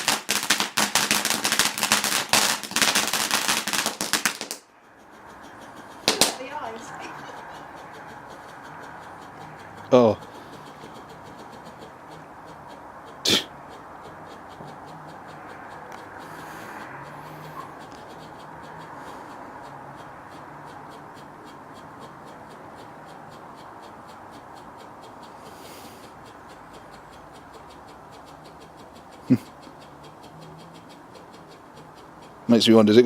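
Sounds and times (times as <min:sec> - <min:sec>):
firework bang: 0:00.0 - 0:04.6, 0:06.1 - 0:06.4.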